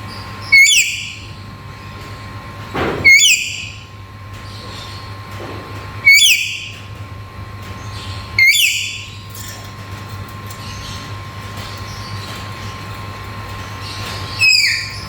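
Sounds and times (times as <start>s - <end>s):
parrot shrill calls: 0.5s - 1.3s, 3.0s - 3.8s, 6.0s - 6.8s, 8.4s - 9.3s, 14.3s - 15.0s.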